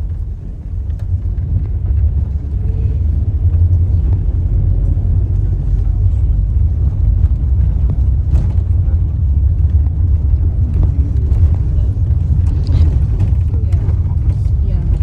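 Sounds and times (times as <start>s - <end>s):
road noise: 0.0s - 15.0s
vehicle engine rumble: 0.0s - 15.0s.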